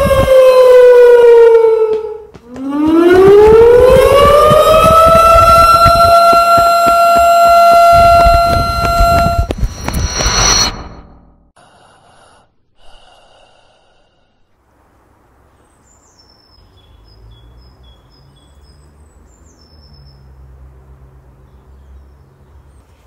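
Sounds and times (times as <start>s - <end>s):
bird chirping: 15.4s - 20.5s.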